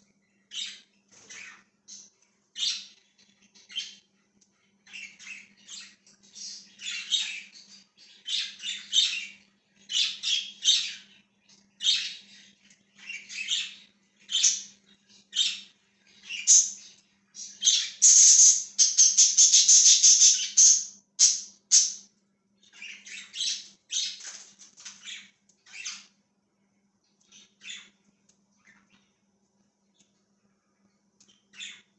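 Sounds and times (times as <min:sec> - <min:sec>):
faint low hum: 0:00.0 - 0:31.9
budgerigars chirping and squawking: 0:00.5 - 0:04.1, 0:04.7 - 0:26.2, 0:27.3 - 0:28.0, 0:31.3 - 0:31.9.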